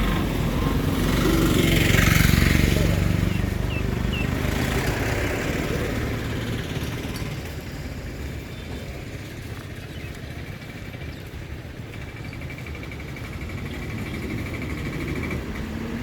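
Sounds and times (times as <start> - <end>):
vehicle engine passing by: 0.0 - 8.2.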